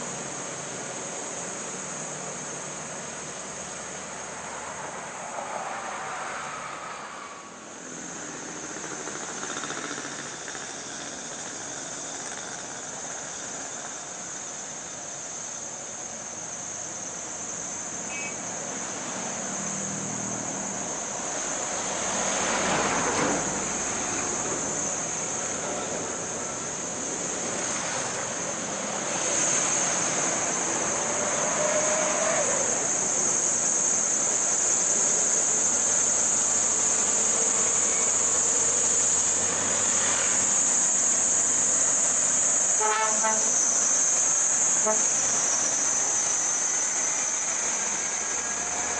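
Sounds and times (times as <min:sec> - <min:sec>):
cars and motorcycles passing: 0:00.0 - 0:14.5, 0:17.4 - 0:48.9
truck engine under load: 0:07.6 - 0:14.9, 0:19.4 - 0:48.9
high-pitched shrill drone: 0:27.8 - 0:48.9.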